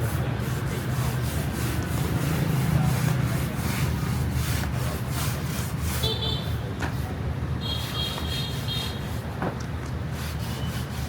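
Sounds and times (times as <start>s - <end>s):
hand rubbing a surface: 0.0s - 6.2s, 10.1s - 11.0s.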